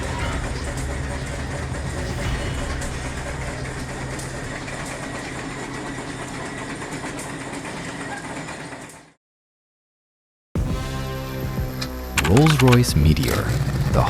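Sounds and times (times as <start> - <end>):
tank engine rumbling: 0.0 - 9.0.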